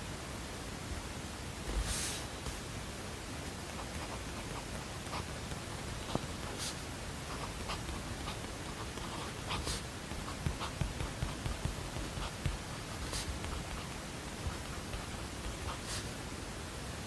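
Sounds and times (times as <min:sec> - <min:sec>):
white-noise hiss: 0:00.0 - 0:17.0
pen scratching: 0:03.7 - 0:16.1.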